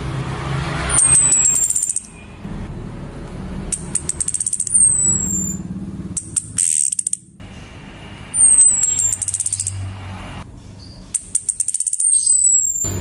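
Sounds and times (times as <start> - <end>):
thrush calling: 0.8 - 2.3, 3.8 - 7.3, 8.3 - 9.9, 11.2 - 13.0.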